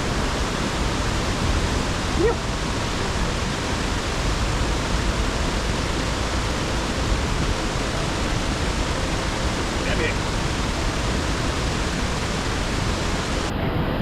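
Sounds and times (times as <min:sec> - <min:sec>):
waterfall rushing: 0:00.0 - 0:14.0
person saying yep: 0:02.2 - 0:02.4, 0:09.9 - 0:10.2.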